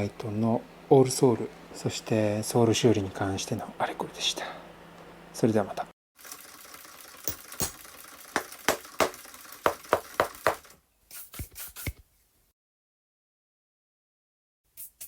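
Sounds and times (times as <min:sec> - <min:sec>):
sharp irregular knocks and taps: 0:08.4 - 0:10.7.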